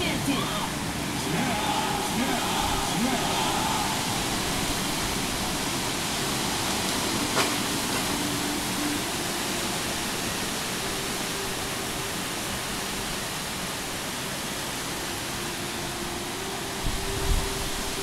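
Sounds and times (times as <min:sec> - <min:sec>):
heavy rain downpour: 0:00.0 - 0:18.0.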